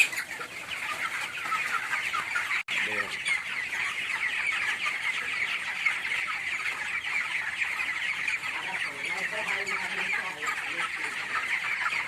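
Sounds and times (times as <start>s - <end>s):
chickens chirping and clucking: 0.0s - 12.0s.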